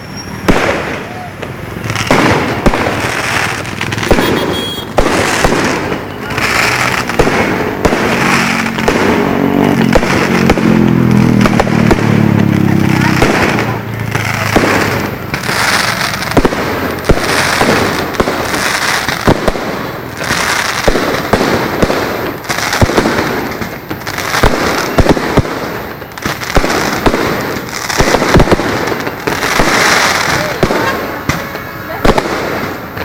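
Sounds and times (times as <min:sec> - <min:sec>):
fireworks bangs and cracks: 0:00.0 - 0:33.0
fireworks crackle and hiss: 0:00.0 - 0:33.0.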